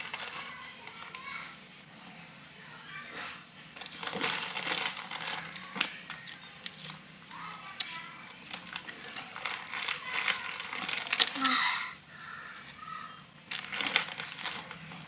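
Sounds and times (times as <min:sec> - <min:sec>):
crunching of fried noodles: 0:03.7 - 0:15.0.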